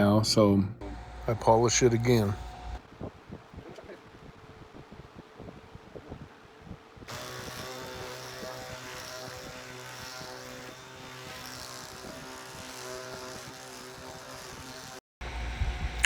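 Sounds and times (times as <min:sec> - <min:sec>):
power polisher motor humming: 0:00.8 - 0:02.8, 0:07.1 - 0:15.0.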